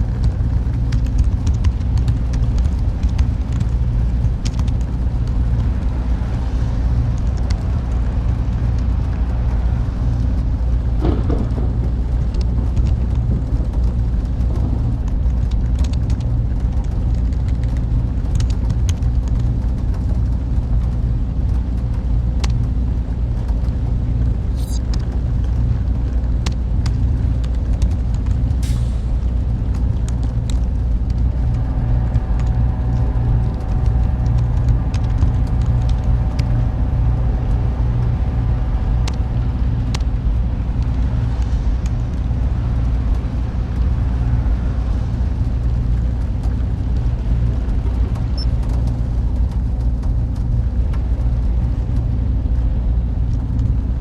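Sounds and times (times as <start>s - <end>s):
loud low machine rumble: 0.0s - 54.0s
faint higher hum: 24.5s - 24.9s, 29.1s - 43.0s.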